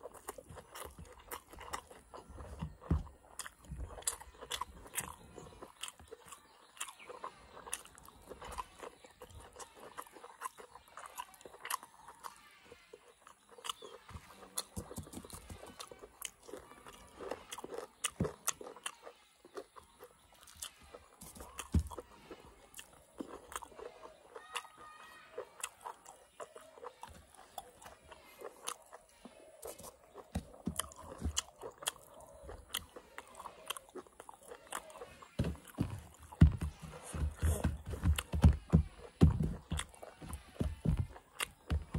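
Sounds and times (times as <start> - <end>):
person chewing and crunching food: 0.0 - 41.9
mouth clicks: 25.4 - 41.9.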